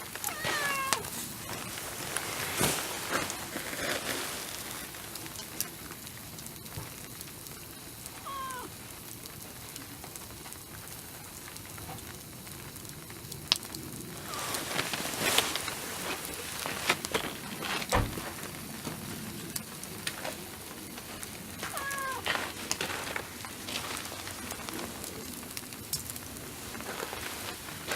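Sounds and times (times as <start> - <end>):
crackles and clicks: 0.0 - 27.9
cat meowing: 0.2 - 1.1, 8.2 - 8.7, 21.7 - 22.3
dull thump: 17.9 - 18.2.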